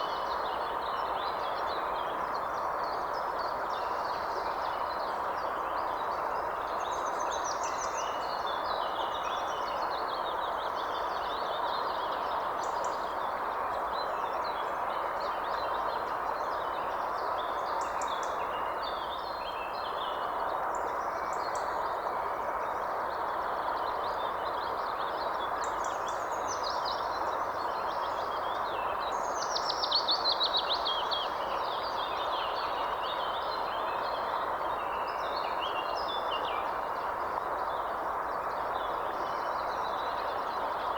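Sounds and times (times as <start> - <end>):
steady background hiss: 0.0 - 40.9.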